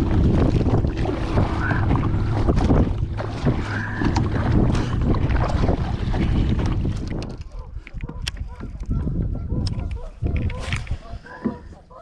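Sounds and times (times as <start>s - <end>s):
wind buffeting microphone: 0.0s - 11.7s
water splashing against hull: 0.0s - 11.8s.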